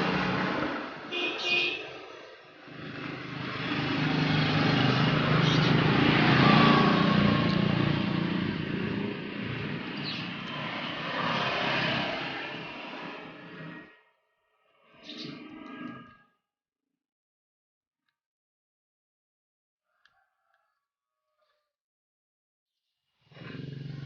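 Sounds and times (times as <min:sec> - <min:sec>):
passing vehicle engine hum: 0:00.0 - 0:14.0.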